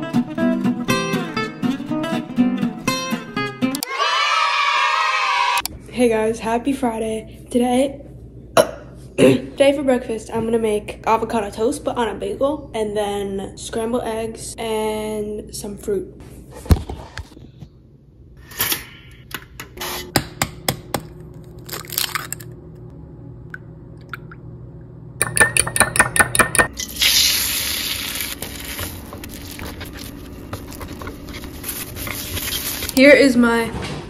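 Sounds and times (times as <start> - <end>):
bowl and utensils clinking: 25.2 - 26.7
eggs beaten in a bowl: 25.2 - 26.7
eggs sizzling in a pan: 26.8 - 30.3
spatula scraping: 28.0 - 33.0.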